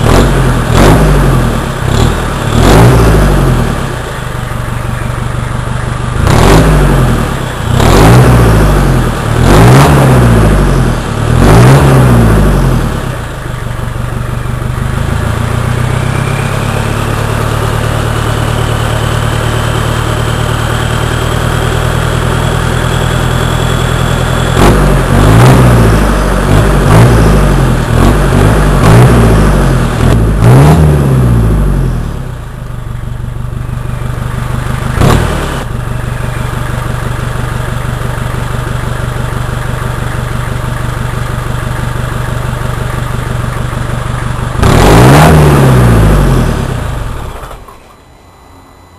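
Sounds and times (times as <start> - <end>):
diesel engine revving and idling: 0.0 - 48.8.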